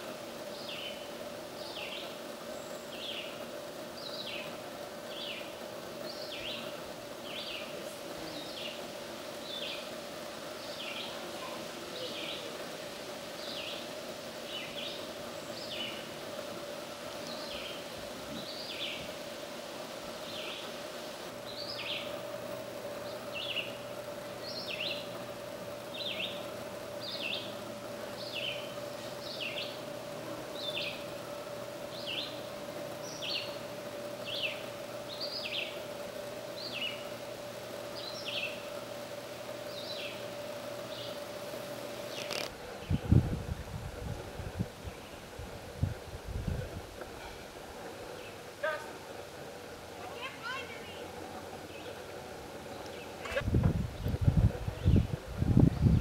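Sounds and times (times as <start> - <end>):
steady low hum: 0.0 - 56.0
small bird chirping: 28.2 - 29.9, 31.9 - 35.9, 37.9 - 38.8.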